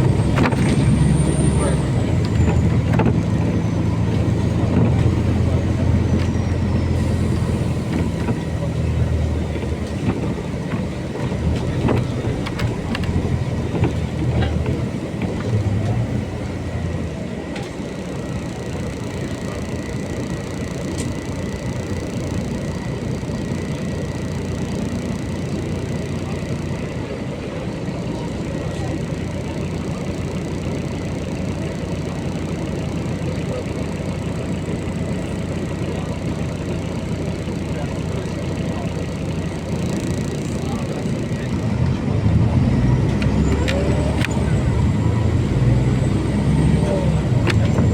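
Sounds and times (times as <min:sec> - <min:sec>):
rattles and clicks: 0:00.0 - 0:16.6, 0:42.9 - 0:47.9
bus engine and road rumble: 0:00.0 - 0:47.9.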